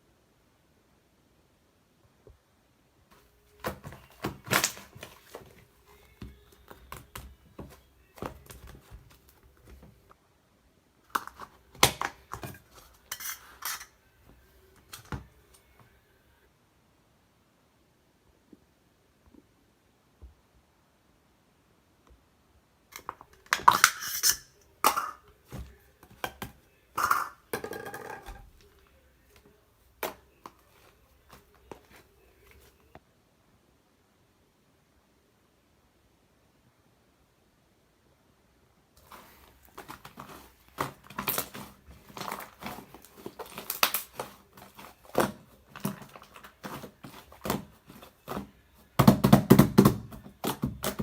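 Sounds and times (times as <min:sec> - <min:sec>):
slime squished by hand: 0:39.0 - 0:48.5.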